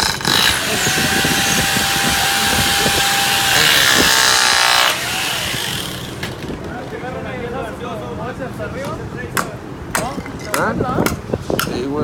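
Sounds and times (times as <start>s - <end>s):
power saw cutting wood: 0.0s - 6.6s.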